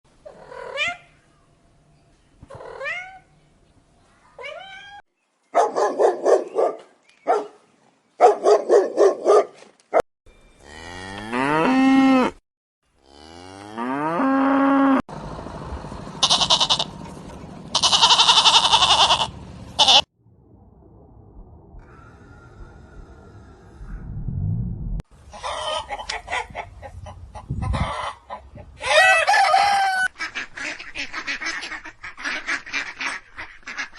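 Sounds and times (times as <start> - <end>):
dog barking: 5.5 - 7.6, 8.2 - 10.0
cow mooing: 10.6 - 12.4, 13.0 - 15.0
goat bleating: 16.2 - 16.9, 17.7 - 20.1.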